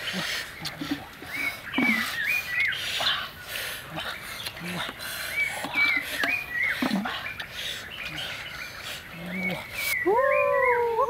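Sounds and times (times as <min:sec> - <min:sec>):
birds chirping: 0:00.0 - 0:11.0
lower wavering bird call: 0:09.2 - 0:11.0.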